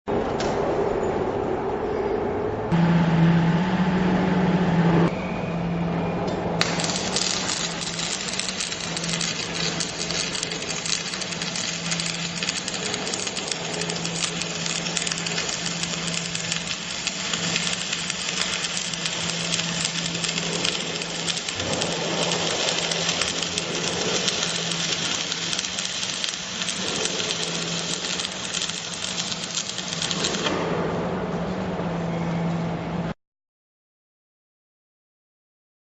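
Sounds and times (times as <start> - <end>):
low welder hum: 2.7 - 33.1
welding arc crackling: 6.6 - 30.6.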